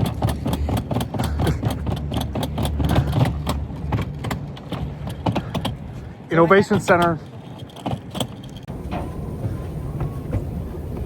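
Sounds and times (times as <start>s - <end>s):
rattling clatter: 0.0s - 9.5s
steady low rumble: 8.4s - 11.0s.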